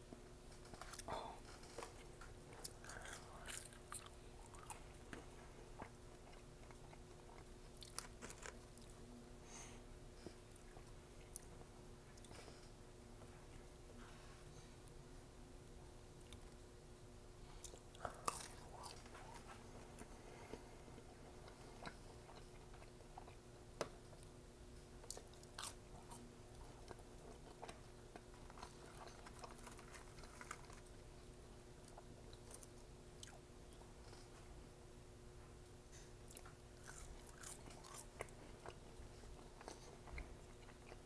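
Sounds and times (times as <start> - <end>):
faint steady hum: 0.0 - 41.0
chewing food: 0.5 - 9.0, 17.6 - 23.5, 25.0 - 31.2, 36.0 - 41.0.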